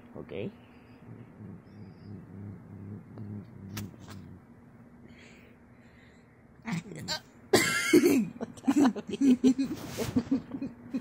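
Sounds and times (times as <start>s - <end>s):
cat growling: 1.0s - 4.5s.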